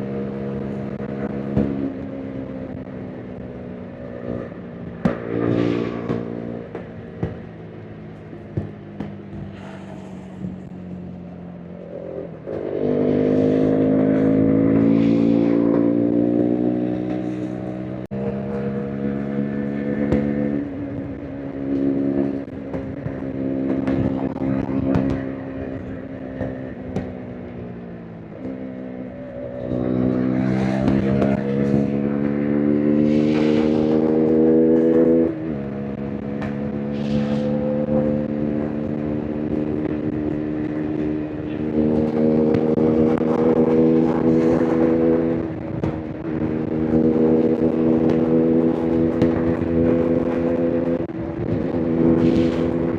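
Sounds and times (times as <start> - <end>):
motorcycle engine at full throttle: 0.0 - 52.9.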